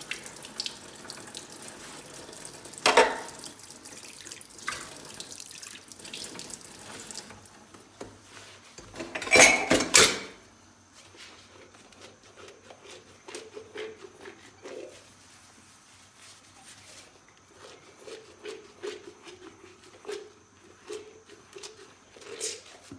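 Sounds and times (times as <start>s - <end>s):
running tap water: 0.0s - 8.0s
dishes clattering and splashing: 2.7s - 3.6s, 4.6s - 5.2s, 8.8s - 10.4s
dishes clinking: 2.8s - 3.4s, 8.8s - 10.4s
sponge rubbing dishes: 8.2s - 10.3s.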